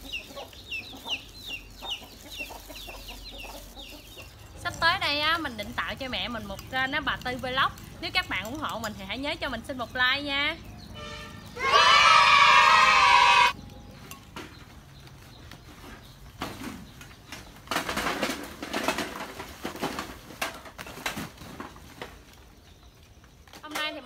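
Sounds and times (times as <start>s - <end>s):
dry pieces rustling and clattering: 14.3s - 24.0s.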